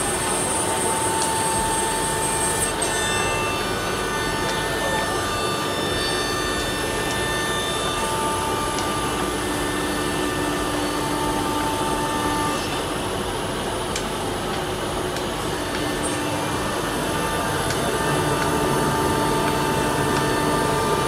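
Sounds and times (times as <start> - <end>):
router machine rushing: 0.0 - 21.0
whining tones: 14.9 - 21.0.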